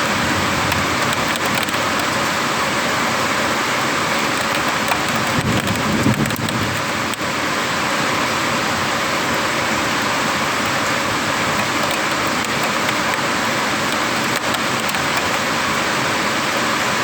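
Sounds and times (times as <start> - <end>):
heavy rain hissing: 0.0 - 17.0
sharp drop ticks: 0.7 - 2.1, 4.1 - 6.6, 10.0 - 15.5.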